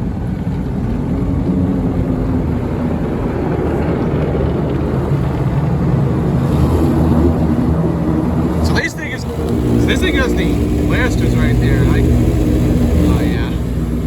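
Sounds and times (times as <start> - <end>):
car wash machinery rumbling: 0.0 - 14.0
faint motor hum: 0.0 - 14.0.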